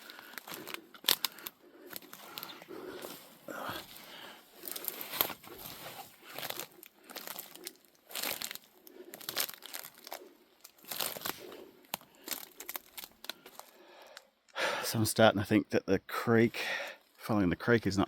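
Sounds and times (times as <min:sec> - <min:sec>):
footsteps crunching on twigs: 0:00.0 - 0:13.7
brushing through undergrowth: 0:01.9 - 0:11.5.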